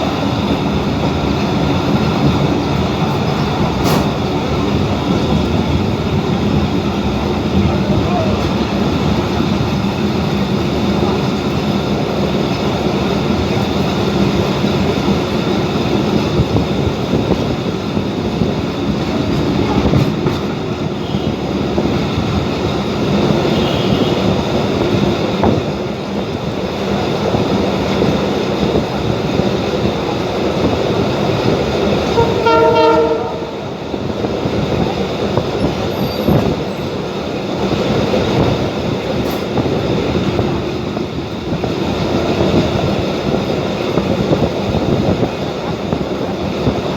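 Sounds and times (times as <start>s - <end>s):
train rumbling along track: 0.0s - 46.9s
train horn: 21.0s - 21.4s, 23.4s - 24.3s, 32.0s - 33.8s.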